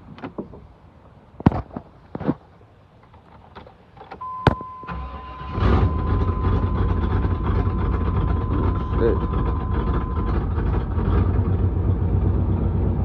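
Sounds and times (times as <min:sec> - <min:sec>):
car engine cranking and idling: 0:02.9 - 0:13.0
steady high beep: 0:04.2 - 0:10.6.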